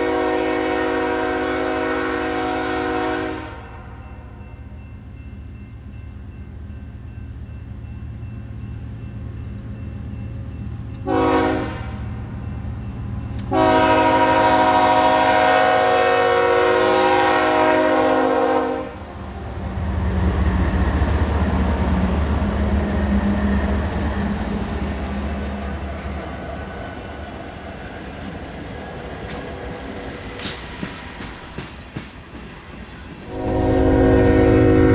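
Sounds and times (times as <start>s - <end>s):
locomotive horn blasts: 0.0s - 4.0s, 11.0s - 12.1s, 13.4s - 19.2s, 33.3s - 34.9s
train rumble: 0.0s - 34.9s
train wheel noise: 4.0s - 34.8s.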